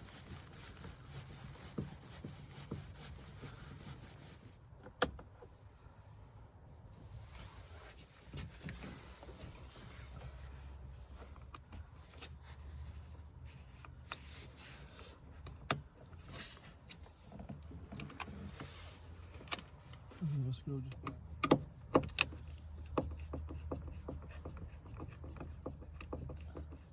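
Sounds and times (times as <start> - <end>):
faint scrapes and rustles: 5.4 - 15.4, 16.1 - 20.3.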